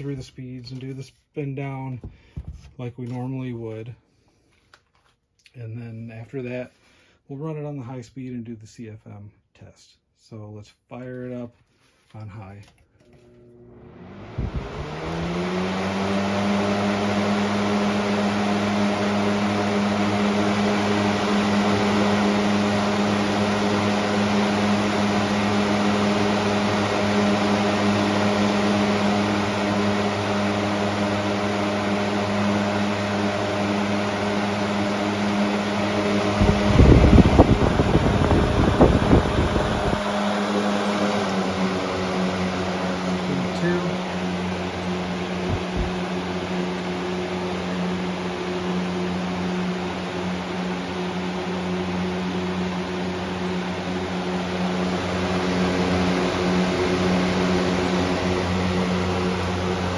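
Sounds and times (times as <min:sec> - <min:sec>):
box fan humming: 0:13.0 - 0:59.9
rushing air: 0:14.1 - 0:16.0, 0:32.5 - 0:46.6
low rumbling and knocks: 0:45.4 - 0:46.0.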